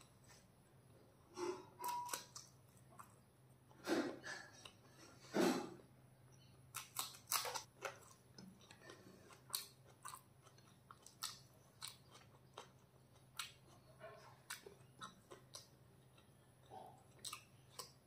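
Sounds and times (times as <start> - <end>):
person chewing with wet smacks: 6.6 - 18.0.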